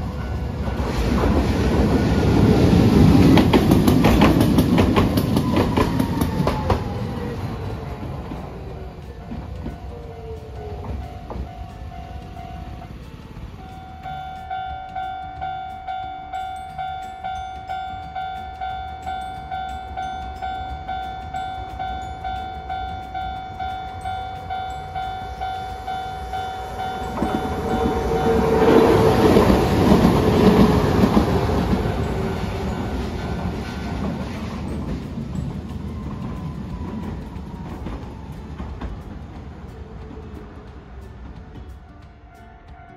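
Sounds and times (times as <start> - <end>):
tram wheels rumbling on rails: 0.0 - 42.9
level crossing bell dinging: 13.6 - 28.5.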